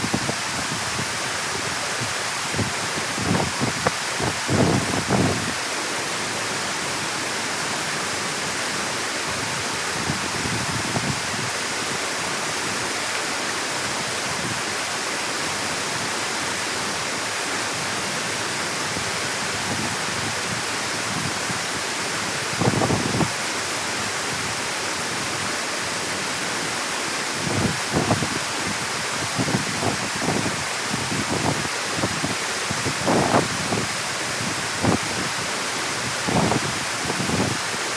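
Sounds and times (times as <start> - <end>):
wind buffeting microphone: 0.0 - 5.6, 22.4 - 23.4, 27.4 - 35.4, 36.0 - 37.7
water rushing through dam: 0.0 - 37.9.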